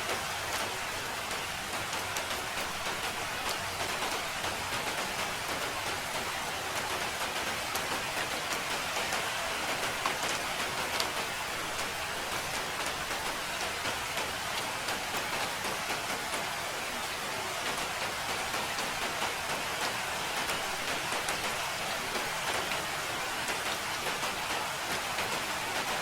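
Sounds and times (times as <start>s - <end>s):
raindrops ticking: 0.0s - 16.5s
steady rain hiss: 0.0s - 26.0s.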